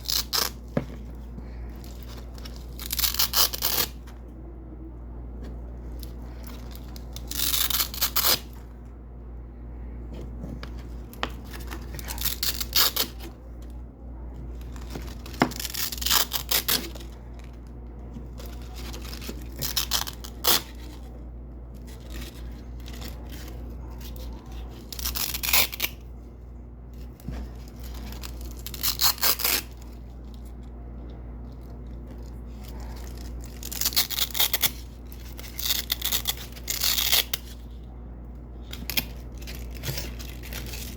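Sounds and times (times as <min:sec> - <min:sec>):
velcro strips ripping: 0:02.4 - 0:04.0, 0:06.7 - 0:08.6, 0:11.5 - 0:13.3, 0:24.1 - 0:26.0, 0:27.8 - 0:30.0, 0:32.8 - 0:37.6, 0:38.7 - 0:40.9.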